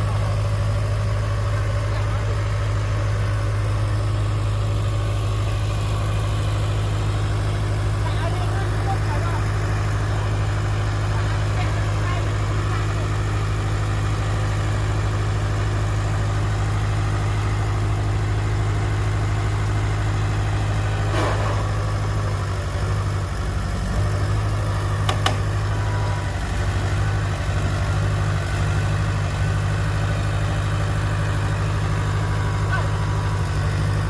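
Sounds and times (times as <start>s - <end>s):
heavy diesel engine running: 0.0s - 34.0s.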